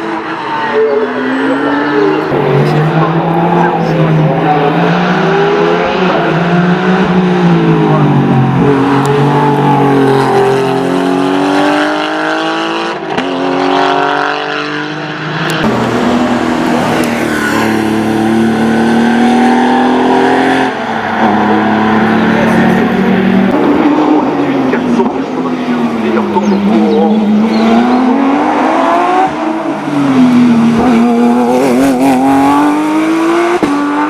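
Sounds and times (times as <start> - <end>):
race car engine at full throttle: 0.0 - 34.0.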